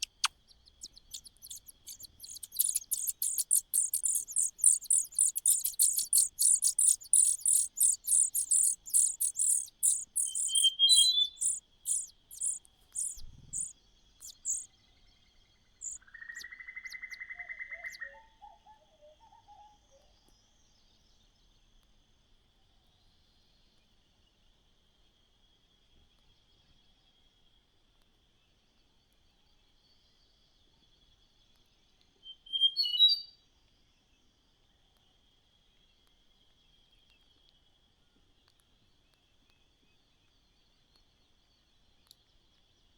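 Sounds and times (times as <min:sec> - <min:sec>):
faint high whine: 0:00.0 - 0:14.6
nestling birds begging calls: 0:00.0 - 0:14.6
buzzy bird trill: 0:00.0 - 0:14.7, 0:15.8 - 0:18.0
low bird chirps: 0:00.0 - 0:14.7, 0:15.8 - 0:18.2.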